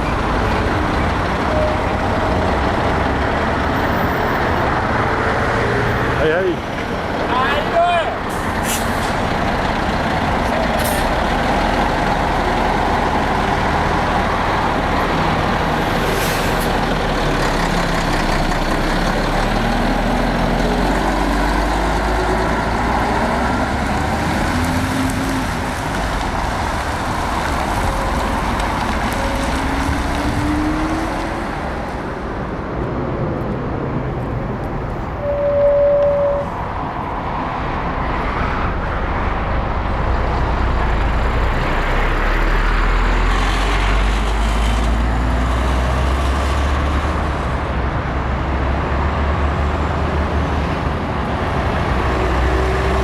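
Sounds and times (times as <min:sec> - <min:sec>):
diesel trucks accelerating: 0:00.0 - 0:53.0.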